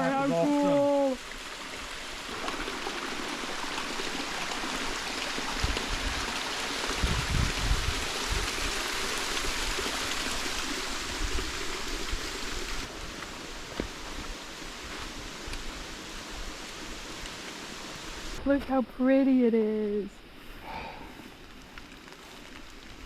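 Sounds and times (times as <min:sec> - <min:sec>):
waterfall rushing: 0:00.0 - 0:14.7.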